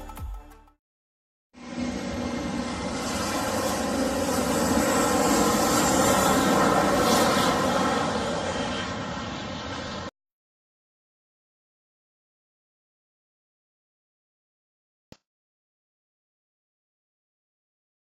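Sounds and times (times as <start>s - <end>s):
faint high whine: 1.6s - 10.1s
jet engines landing: 1.6s - 10.1s.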